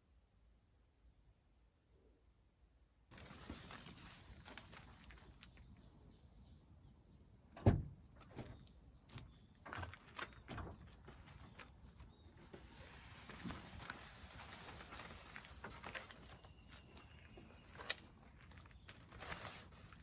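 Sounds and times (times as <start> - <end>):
high-pitched outdoor hiss: 3.1 - 20.0
dull thump: 7.6 - 8.6
light knocks and clatters: 7.6 - 14.1.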